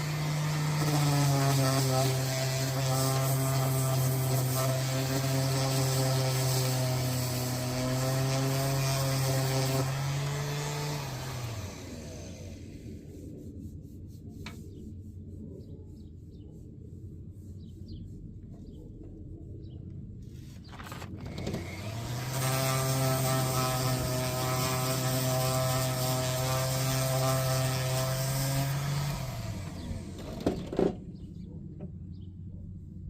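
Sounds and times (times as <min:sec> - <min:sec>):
power tool motor running: 0:00.0 - 0:12.8, 0:21.2 - 0:30.6.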